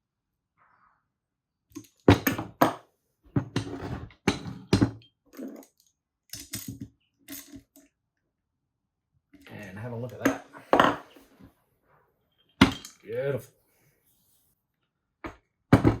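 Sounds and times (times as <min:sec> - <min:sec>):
metal parts knocking and clinking: 0:04.3 - 0:07.8, 0:12.5 - 0:13.1.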